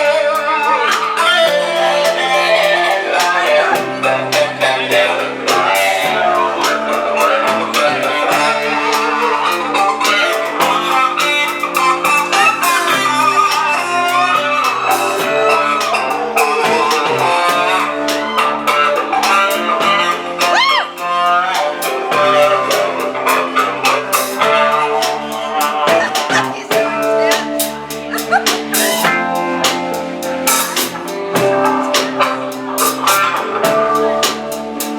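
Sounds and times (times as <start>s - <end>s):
bass guitar: 0.0s - 34.9s
drums and cymbals: 0.0s - 34.9s
electric guitar lead: 0.0s - 34.9s.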